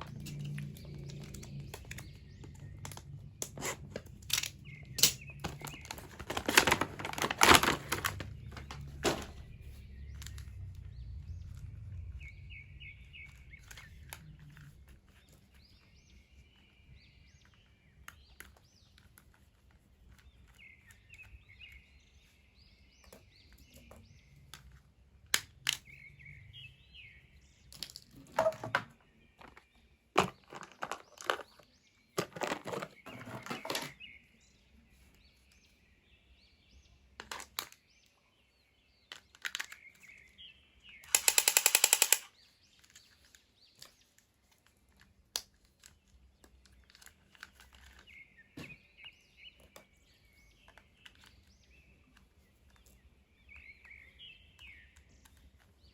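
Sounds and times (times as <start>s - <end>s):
birds chirping: 0.0s - 55.9s
toy packaging being handled: 0.3s - 10.5s, 30.2s - 34.0s
packaging crinkling: 5.4s - 9.4s.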